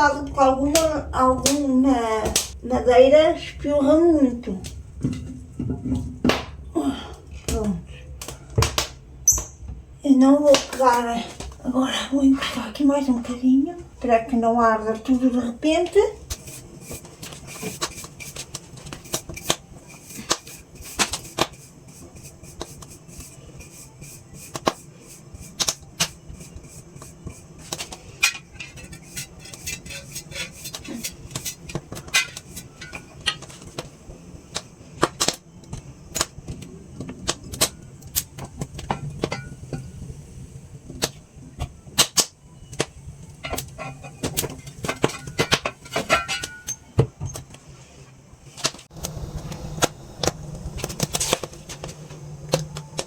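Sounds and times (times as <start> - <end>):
wood fire crackling and popping: 0.6 - 2.6, 7.4 - 9.5, 10.5 - 11.7, 16.2 - 39.8, 40.8 - 46.7, 48.6 - 53.0.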